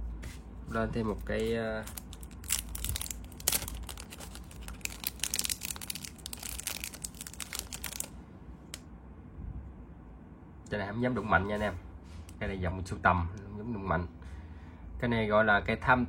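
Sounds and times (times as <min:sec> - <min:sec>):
packaging crinkling: 0:01.1 - 0:08.8.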